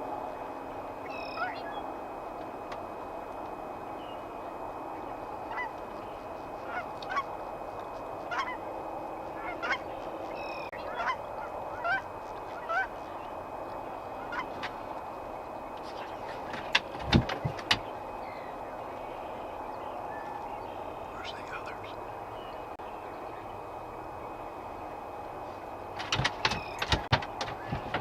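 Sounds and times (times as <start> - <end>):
geese honking: 1.0 - 1.8, 4.0 - 16.8, 17.7 - 22.2.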